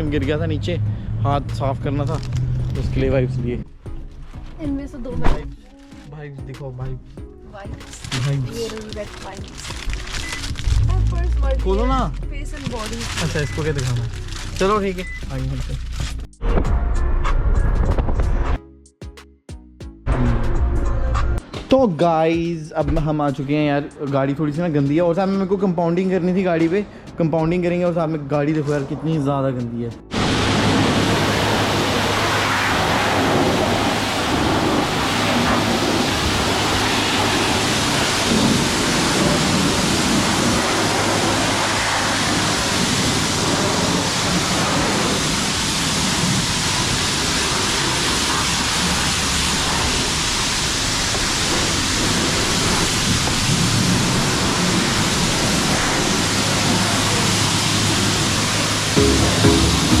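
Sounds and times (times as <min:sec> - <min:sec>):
pressure washer spraying water: 0:30.1 - 0:58.2
low hum: 0:59.0 - 1:00.0.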